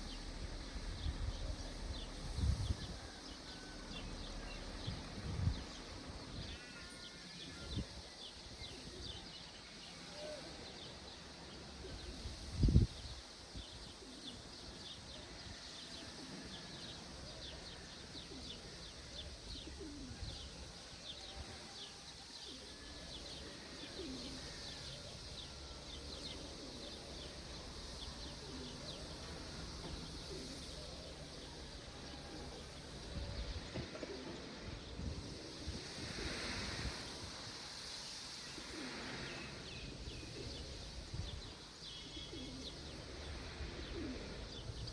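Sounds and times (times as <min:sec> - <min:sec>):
birds chirping: 0:38.0 - 0:44.9.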